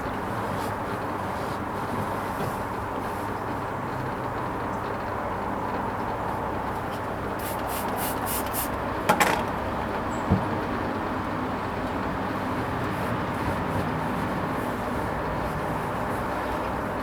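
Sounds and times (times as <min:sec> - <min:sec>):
washing machine hum: 0:00.0 - 0:17.0
short hissing strokes: 0:07.4 - 0:08.7.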